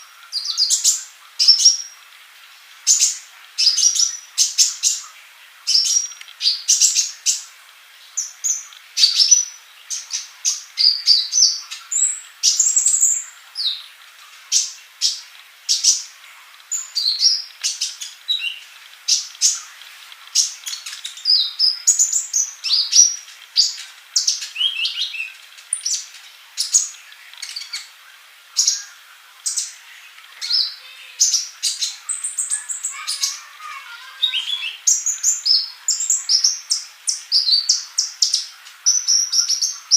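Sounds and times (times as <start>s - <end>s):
bird singing high chirps: 16.7s - 19.8s, 20.4s - 28.0s, 28.6s - 39.9s.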